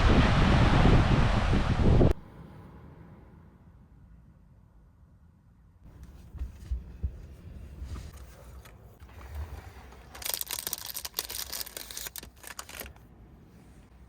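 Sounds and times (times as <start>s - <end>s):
low rumble: 0.0s - 5.6s
crinkling and rustling: 5.9s - 13.9s.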